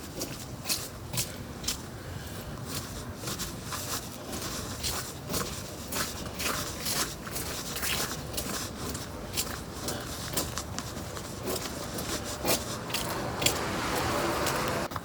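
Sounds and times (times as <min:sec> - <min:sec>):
crunchy footsteps: 0:00.0 - 0:15.0.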